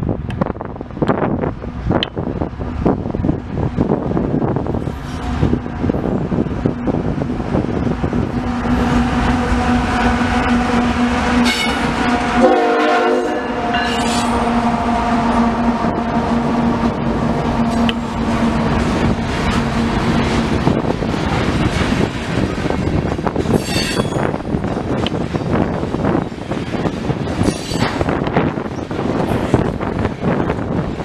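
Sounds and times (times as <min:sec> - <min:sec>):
high pitched wheel squealing: 0:13.6 - 0:17.0, 0:23.5 - 0:24.3, 0:27.4 - 0:28.0
freight train wheels clattering: 0:13.6 - 0:31.0.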